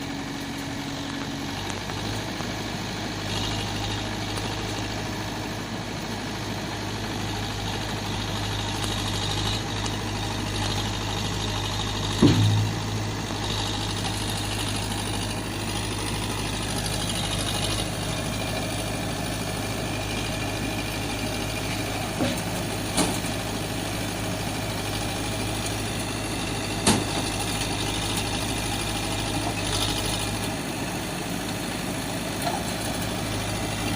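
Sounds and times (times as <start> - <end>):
vehicle engine idling: 0.0 - 33.9
knocks: 12.2 - 12.8.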